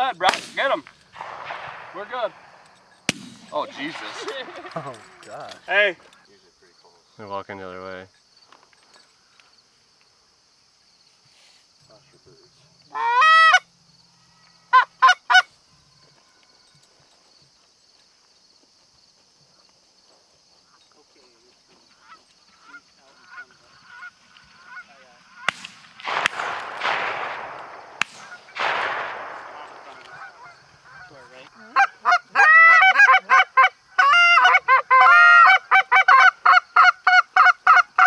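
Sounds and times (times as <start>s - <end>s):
sharp clicks: 0.2s - 6.2s, 25.5s - 30.9s
goose honking: 29.8s - 37.9s.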